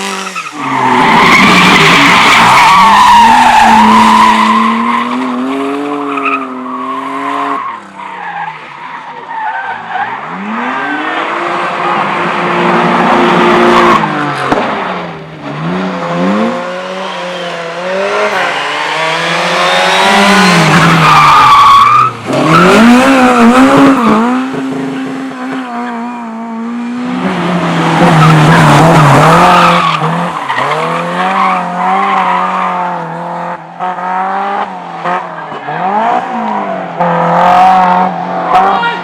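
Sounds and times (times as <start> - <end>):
race car engine revving: 0.0 - 7.9, 10.2 - 39.0
tyres squealing and skidding: 0.0 - 14.5, 15.4 - 26.1, 27.3 - 33.0.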